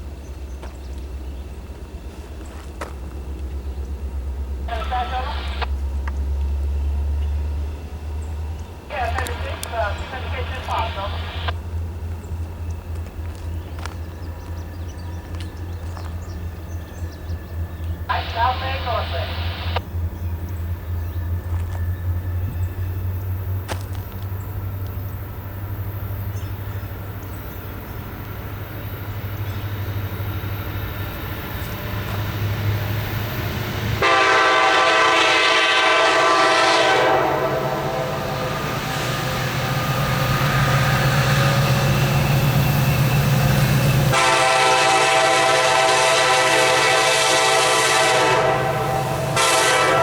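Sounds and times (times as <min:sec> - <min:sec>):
locomotive engine rumble: 0:00.0 - 0:50.0
locomotive air horn blasts: 0:34.0 - 0:38.9, 0:44.0 - 0:50.0.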